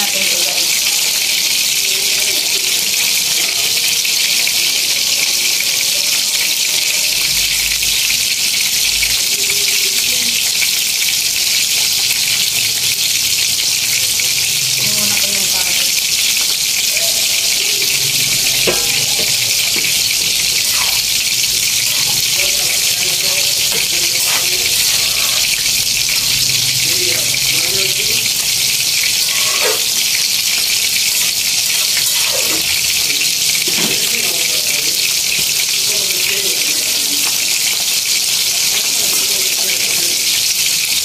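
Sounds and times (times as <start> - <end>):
food sizzling in a wok: 0.0 - 41.0
utensil knocking against pan: 18.6 - 20.0.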